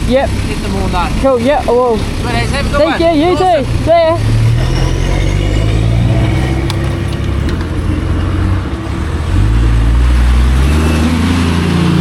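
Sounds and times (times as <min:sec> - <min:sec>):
vehicle engine revving: 0:00.0 - 0:12.0.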